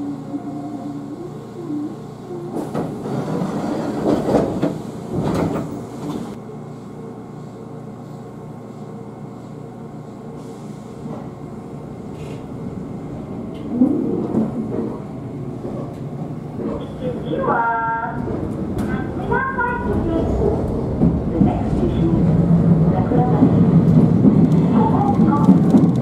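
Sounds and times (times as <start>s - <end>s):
train low rumble: 0.0s - 26.0s
train clunks and rattles: 2.5s - 6.4s, 11.0s - 26.0s.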